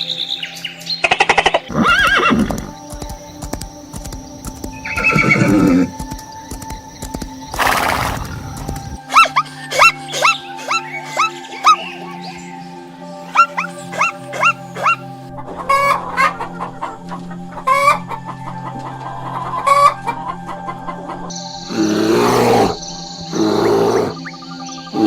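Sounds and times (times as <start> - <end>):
background music: 0.0 - 25.0
horse neighing: 1.7 - 2.8, 4.7 - 6.1, 7.5 - 9.0, 21.7 - 24.2
short chirp-like calls: 21.3 - 25.0.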